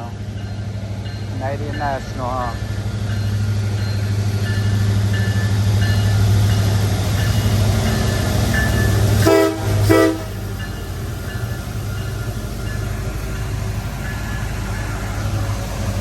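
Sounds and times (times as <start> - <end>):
locomotive engine drone: 0.0 - 16.0
train horn blasts: 9.2 - 10.5.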